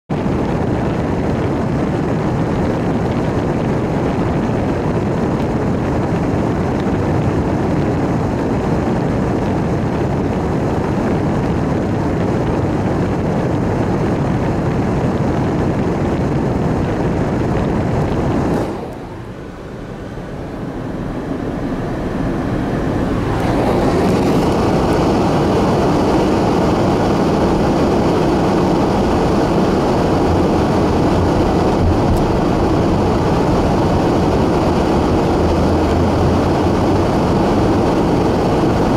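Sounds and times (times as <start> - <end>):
loud rushing noise: 15.0 - 38.9.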